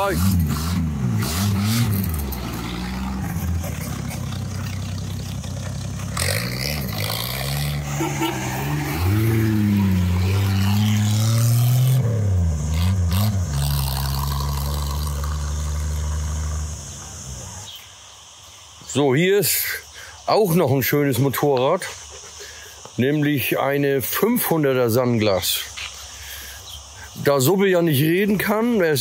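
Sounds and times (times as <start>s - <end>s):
car engine driving off: 0.0s - 17.8s.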